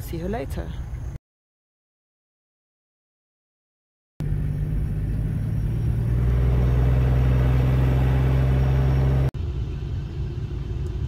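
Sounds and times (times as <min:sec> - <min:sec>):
car engine humming: 0:04.2 - 0:11.0
quiet rumble: 0:04.2 - 0:11.0.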